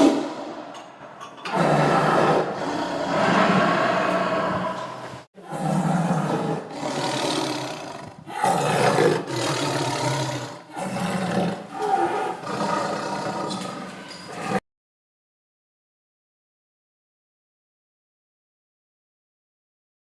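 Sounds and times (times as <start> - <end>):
tiger roaring and growling: 1.4 - 14.6.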